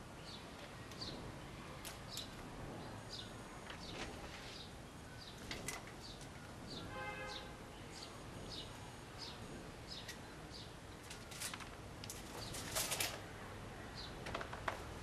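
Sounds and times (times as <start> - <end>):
bird chirping: 2.1 - 10.8.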